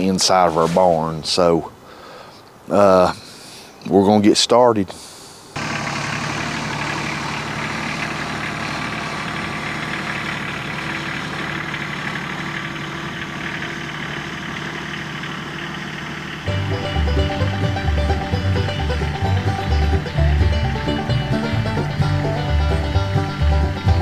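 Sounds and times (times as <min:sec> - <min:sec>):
tractor diesel engine running: 0:05.6 - 0:24.0.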